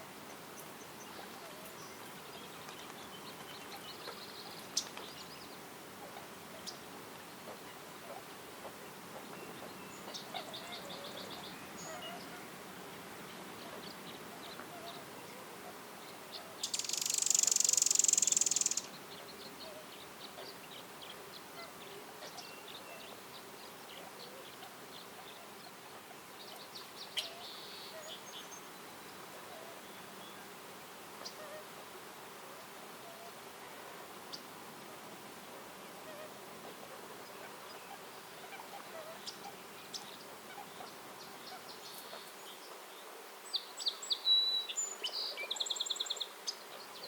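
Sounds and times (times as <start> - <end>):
forest ambience: 0.0 - 47.0
faint chirping trills: 16.0 - 20.9.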